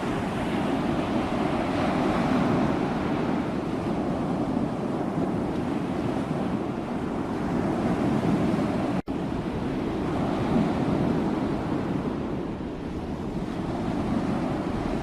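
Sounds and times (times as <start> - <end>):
sea waves washing: 0.0 - 15.0.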